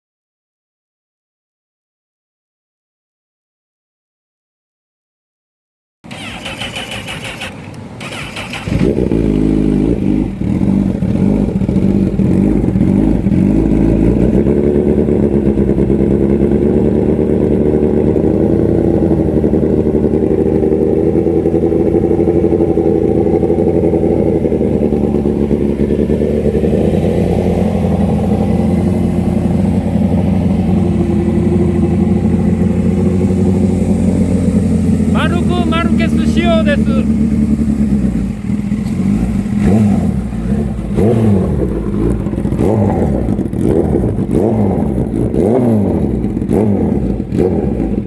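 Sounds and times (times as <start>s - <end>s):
motorcycle starter: 6.1s - 9.1s
motorcycle engine idling: 6.1s - 48.0s.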